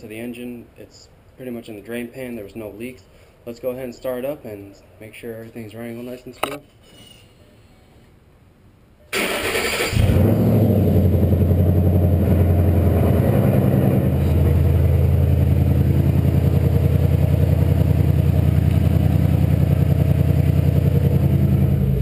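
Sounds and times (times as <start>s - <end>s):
engine cranking: 9.2s - 10.2s
car engine idling: 10.0s - 22.0s.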